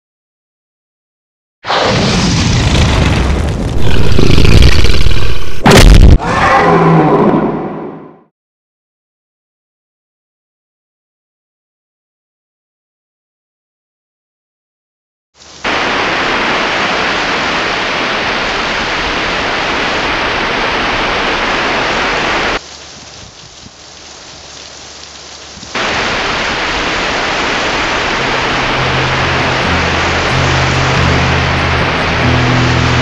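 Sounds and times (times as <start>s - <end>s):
heavy rain hiss: 15.4s - 33.0s.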